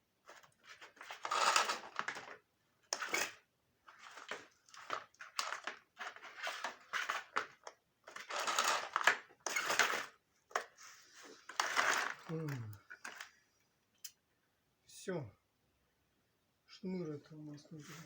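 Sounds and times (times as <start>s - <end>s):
plastic parts rustling and scraping: 0.2s - 13.6s.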